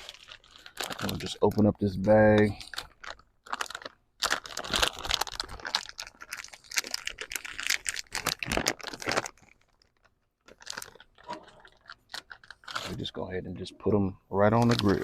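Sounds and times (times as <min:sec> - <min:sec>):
plastic bag crinkling: 0:00.0 - 0:13.3, 0:14.4 - 0:15.0.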